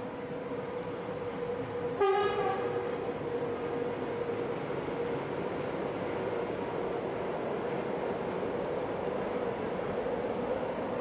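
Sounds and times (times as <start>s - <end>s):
train humming on a bridge: 0.0s - 11.0s
train horn blast: 1.9s - 3.0s.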